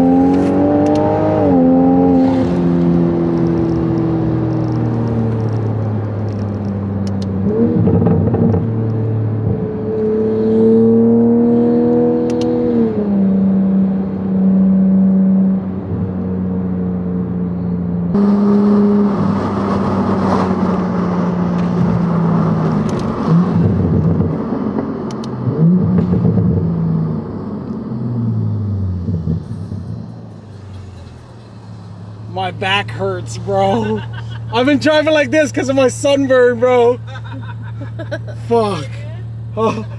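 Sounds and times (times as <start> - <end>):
car engine accelerating: 0.0 - 39.9
road and wind rush: 0.0 - 39.9.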